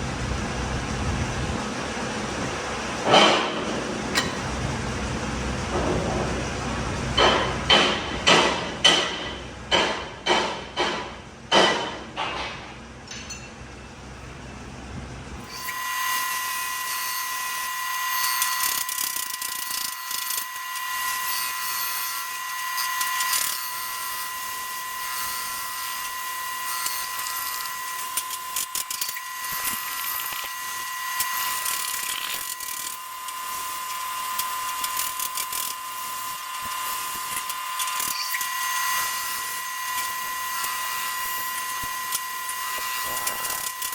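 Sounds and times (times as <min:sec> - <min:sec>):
sharp ringing metal knocks: 0:07.2 - 0:13.6
machine cutting steel whining: 0:15.4 - 0:43.9.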